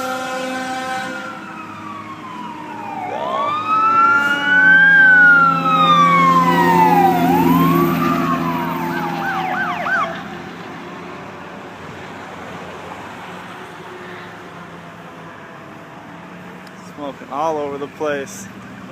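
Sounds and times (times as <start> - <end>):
emergency siren wailing: 0.0 - 11.0
engine hum: 1.0 - 17.8.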